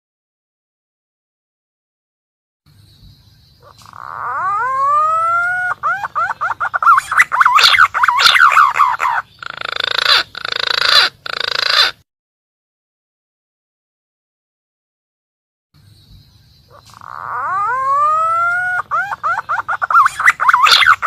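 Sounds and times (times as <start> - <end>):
pigeon call whistles: 3.7 - 12.0, 16.8 - 21.0.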